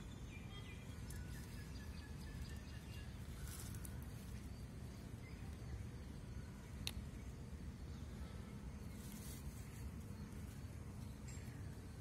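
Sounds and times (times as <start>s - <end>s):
birds chirping: 0.0s - 12.0s
low outdoor background noise: 0.0s - 12.0s
leaves rustling: 0.8s - 6.0s, 8.8s - 11.8s.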